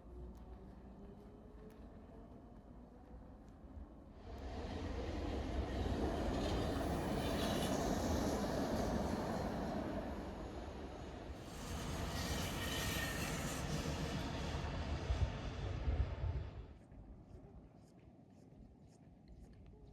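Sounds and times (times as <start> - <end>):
train wheels rumbling on rail: 4.4 - 16.5.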